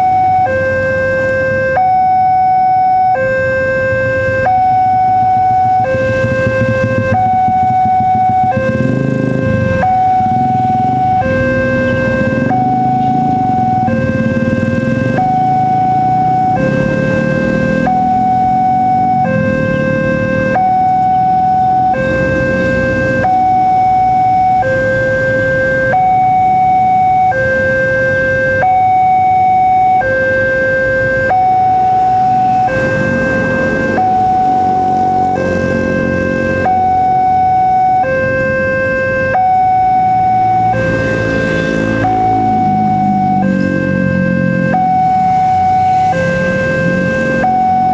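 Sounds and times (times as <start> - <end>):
level crossing alarm: 0.0 - 47.9
low rumble of road traffic: 0.0 - 47.9
vehicle engines running: 0.0 - 47.9.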